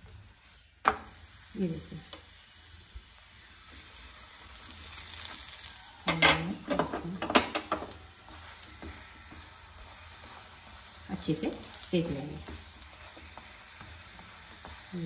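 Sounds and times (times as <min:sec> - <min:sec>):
flatbread sizzling in ghee: 0:00.0 - 0:15.0
wooden spatula scraping griddle: 0:06.6 - 0:15.0.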